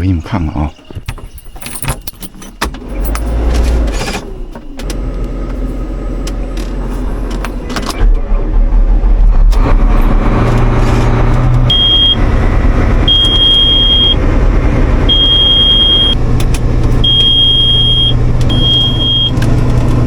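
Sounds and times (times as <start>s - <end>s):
combine harvester engine running: 1.8s - 20.0s
high-pitched warning buzzer beeps: 11.7s - 12.2s, 15.1s - 16.2s.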